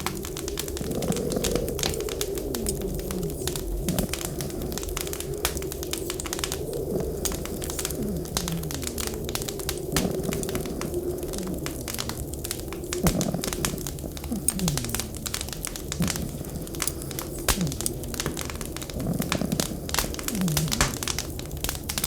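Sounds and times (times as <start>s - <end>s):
low whistling wind: 0.0s - 22.0s
wood fire crackling and popping: 0.0s - 22.0s.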